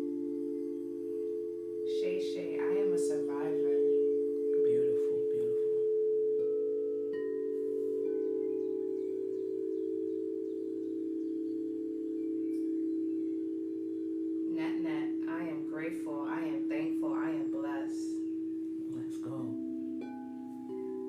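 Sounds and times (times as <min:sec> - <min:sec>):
singing bowls ringing: 0:00.0 - 0:21.0
high chime-like notes: 0:16.9 - 0:21.0.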